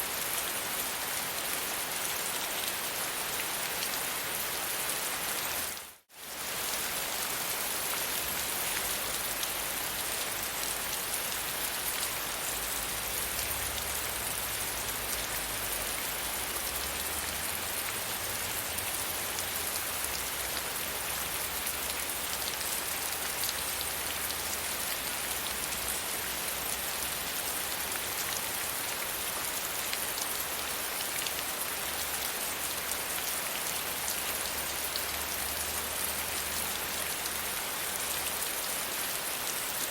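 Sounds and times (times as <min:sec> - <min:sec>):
gentle rain pattering: 0:00.0 - 0:39.9.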